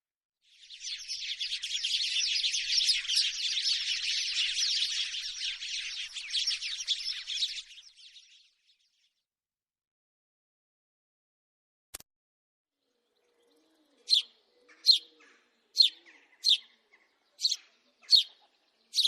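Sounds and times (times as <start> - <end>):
sparrow chirping: 0.5 - 8.8, 12.9 - 19.0.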